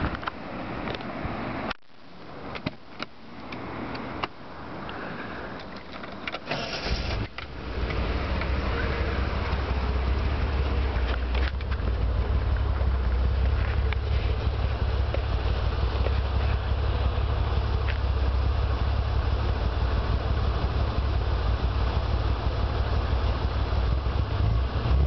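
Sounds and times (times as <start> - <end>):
car engine exhaust: 6.5 - 25.0.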